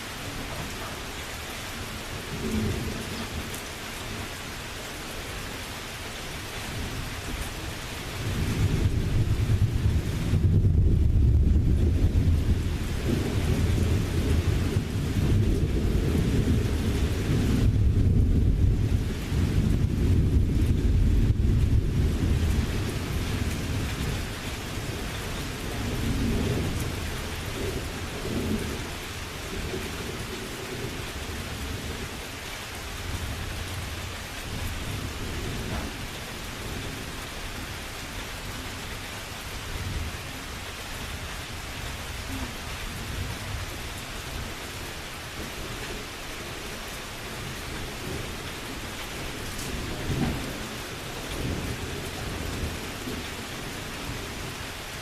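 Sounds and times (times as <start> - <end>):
steady rain: 0.0 - 55.0
rolling thunder: 8.1 - 32.2, 32.9 - 37.3, 47.3 - 54.6.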